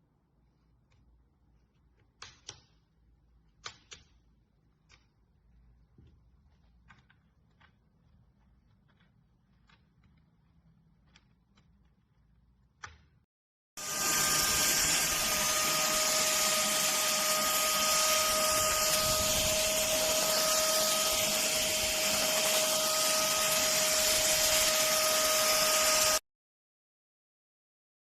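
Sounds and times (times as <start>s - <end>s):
handheld vacuum cleaner whine: 13.8s - 26.2s.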